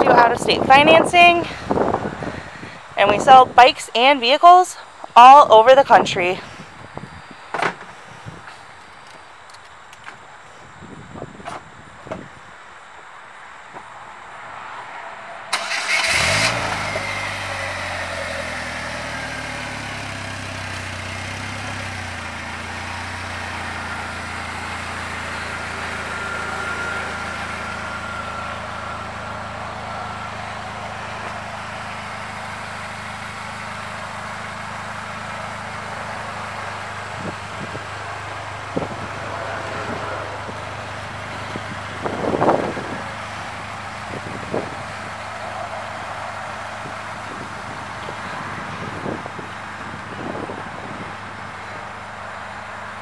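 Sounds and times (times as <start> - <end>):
car engine starting and idling: 0.0 - 13.0, 13.6 - 53.0.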